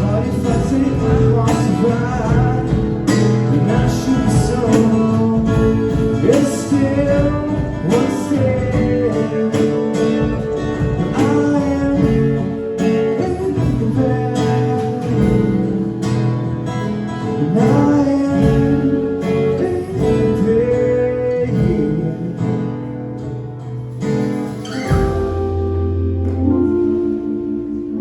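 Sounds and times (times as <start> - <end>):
acoustic guitars strumming: 0.0 - 28.0
sliding held melody notes: 24.2 - 28.0.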